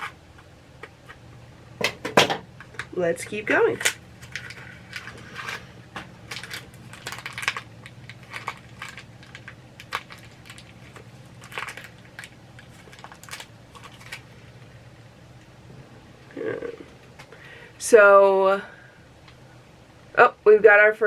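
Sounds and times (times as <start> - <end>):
cardboard packaging crinkling: 3.8 - 14.7.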